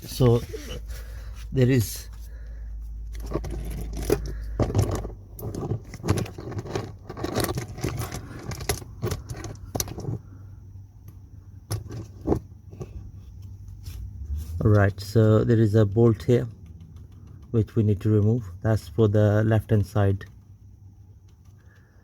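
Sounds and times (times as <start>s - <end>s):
metallic clinks and scrapes: 3.0s - 10.3s.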